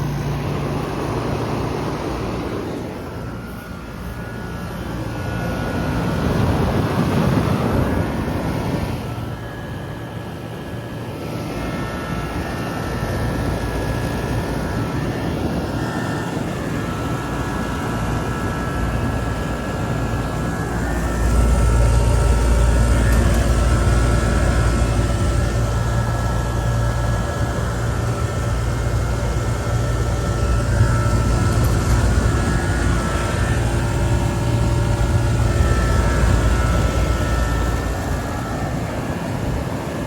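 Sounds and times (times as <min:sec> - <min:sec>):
air conditioner running: 0:00.0 - 0:40.0.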